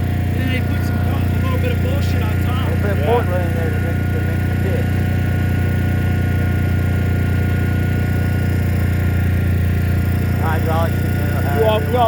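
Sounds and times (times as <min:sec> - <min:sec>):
machine droning: 0:00.0 - 0:12.0
faint high steady tone: 0:11.2 - 0:12.0.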